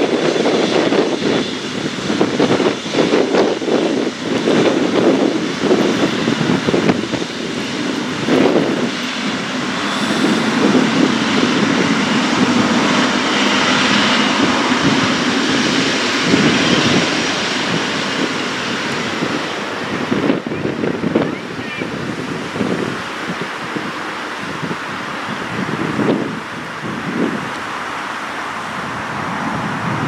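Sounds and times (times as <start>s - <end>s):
jet engines rushing: 0.0s - 30.0s.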